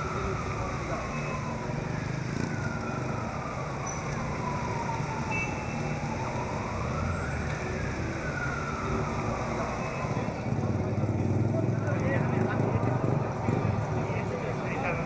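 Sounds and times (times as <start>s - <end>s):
siren wailing: 0.0s - 10.6s.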